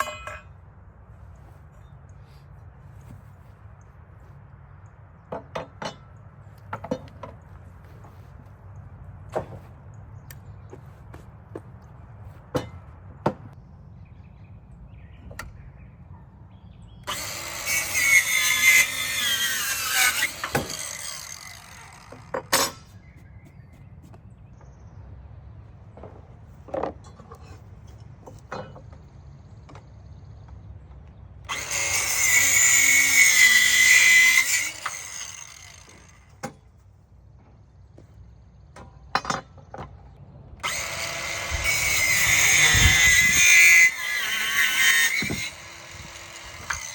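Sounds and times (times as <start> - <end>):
circular saw cutting wood: 17.1 - 23.2, 31.5 - 36.3, 40.6 - 46.9.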